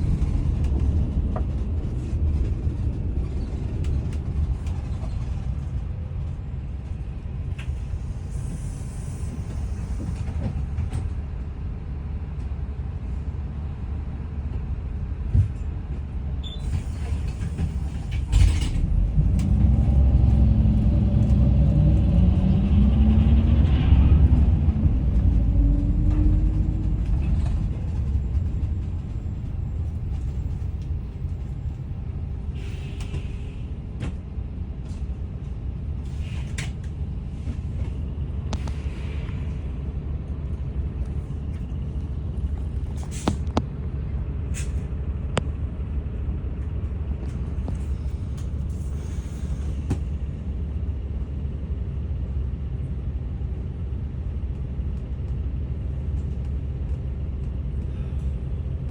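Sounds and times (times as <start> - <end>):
bus engine and road rumble: 0.0 - 58.9
air brake hisses: 8.2 - 10.1, 32.6 - 33.7, 48.7 - 49.9.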